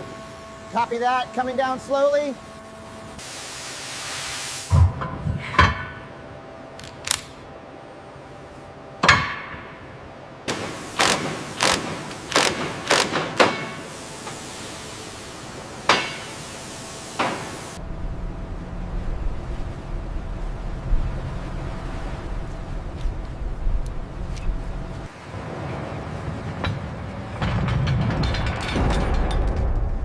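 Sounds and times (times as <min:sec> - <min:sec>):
steady low background noise: 0:00.0 - 0:30.0
sharp knocks and clanks: 0:09.0 - 0:09.9, 0:10.5 - 0:14.5, 0:15.8 - 0:17.8, 0:26.5 - 0:30.0.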